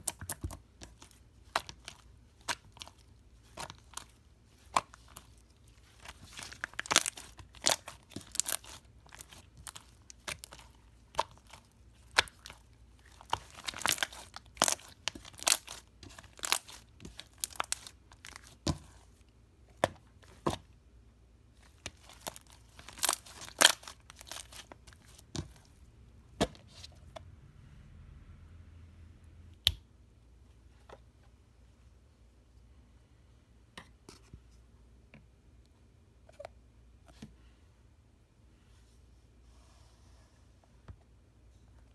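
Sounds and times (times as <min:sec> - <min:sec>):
slime popping and crackling: 0:04.6 - 0:18.8, 0:21.7 - 0:25.2.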